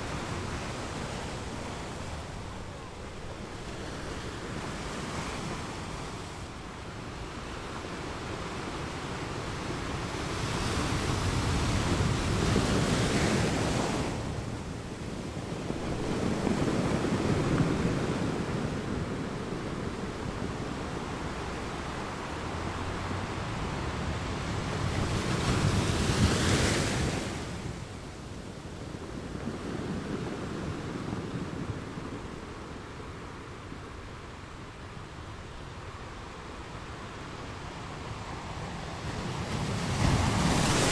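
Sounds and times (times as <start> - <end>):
wind rumbling on microphone: 0.0 - 40.9
ocean surf breaking: 10.0 - 28.0, 37.6 - 40.9.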